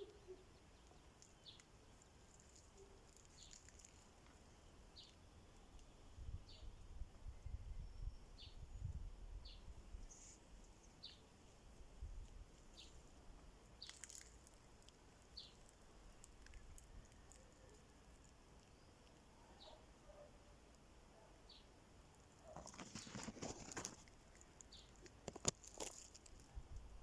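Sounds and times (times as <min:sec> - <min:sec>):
small bird calling: 0:00.0 - 0:04.4, 0:18.7 - 0:20.6
low rumble of wind: 0:04.2 - 0:13.7, 0:25.8 - 0:27.0.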